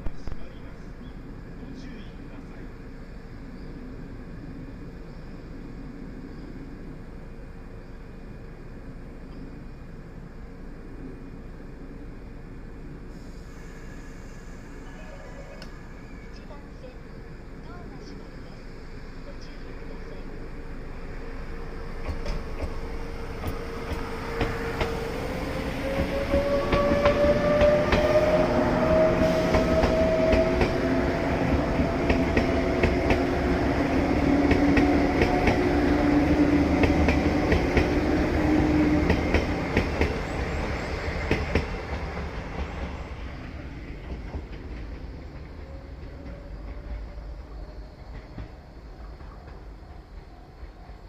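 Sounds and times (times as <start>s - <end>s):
electric train motor whine: 19.6s - 44.1s.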